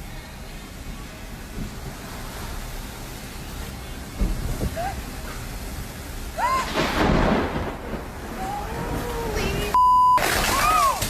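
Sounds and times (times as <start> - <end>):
steady rain: 0.0 - 11.0
people crying out: 6.4 - 7.0, 8.3 - 9.8, 10.4 - 11.0
thunderclap rumbling: 6.4 - 11.0
censor beep: 9.7 - 10.2.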